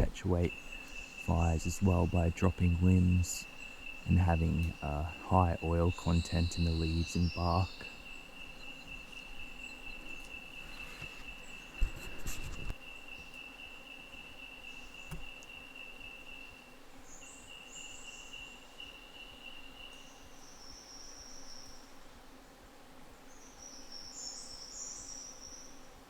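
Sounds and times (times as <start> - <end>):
higher-pitched insect calling: 0.0 - 12.2
insect high-pitched trill: 0.0 - 21.9
rustle of handling noise: 10.0 - 12.8.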